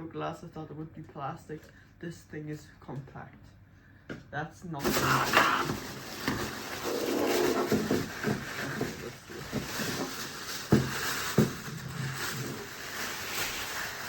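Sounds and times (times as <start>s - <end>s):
packaging rustling and scraping: 4.8s - 14.0s.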